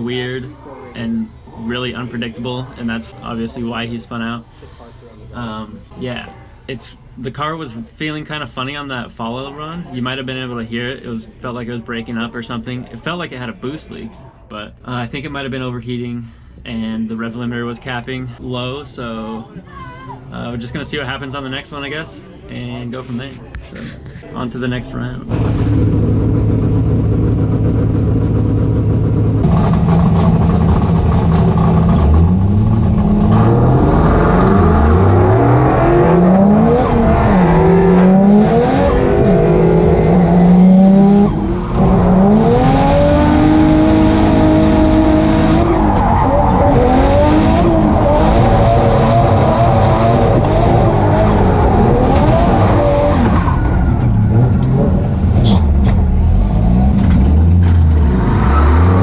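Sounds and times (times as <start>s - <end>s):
car engine revving: 25.3s - 59.0s.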